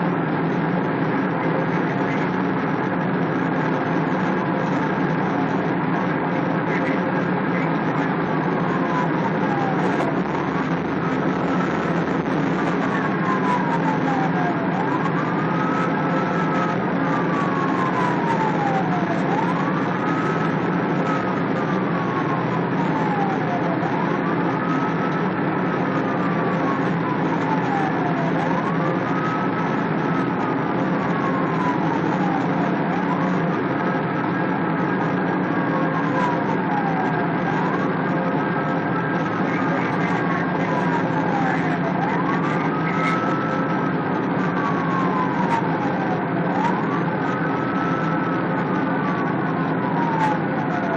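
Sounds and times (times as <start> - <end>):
police siren wailing: 0.0 - 50.9
vehicle engine and road noise: 0.0 - 50.9.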